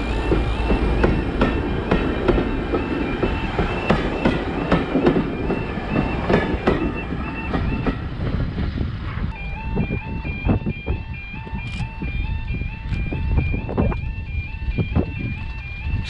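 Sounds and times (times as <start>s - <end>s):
wheels clicking over rail joints: 0.0s - 8.4s
train rumble: 0.0s - 16.0s.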